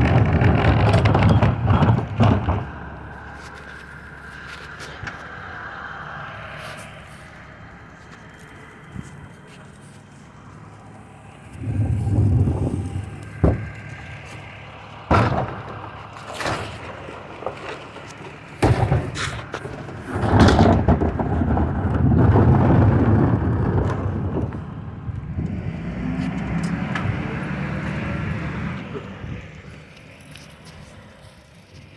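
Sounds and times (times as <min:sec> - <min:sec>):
recycling truck bangs and clatters: 0:00.0 - 0:05.2, 0:11.4 - 0:29.6
truck steady rumble: 0:00.0 - 0:31.9.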